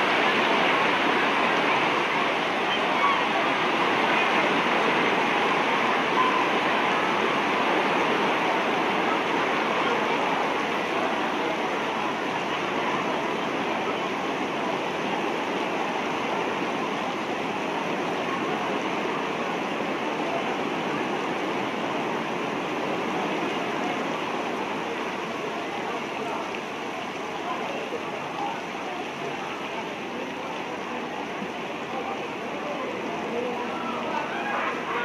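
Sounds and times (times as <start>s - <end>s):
heavy rain: 0.0s - 35.0s.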